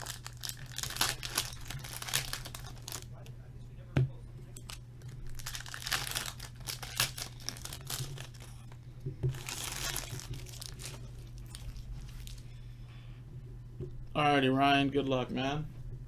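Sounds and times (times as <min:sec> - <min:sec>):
plastic wrapping tearing and crinkling: 0:00.0 - 0:03.2, 0:04.6 - 0:08.6, 0:09.3 - 0:12.4.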